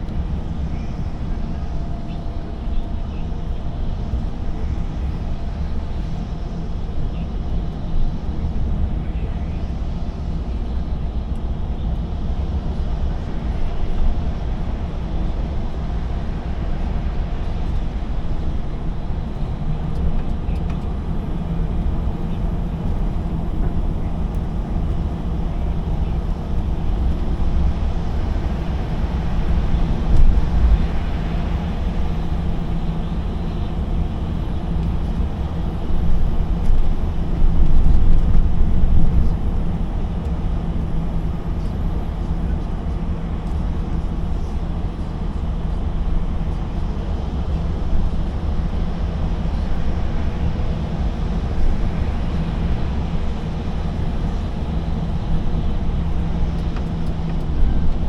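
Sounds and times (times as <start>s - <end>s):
lorry diesel engine drone: 0.0s - 58.0s
road noise: 11.9s - 58.0s.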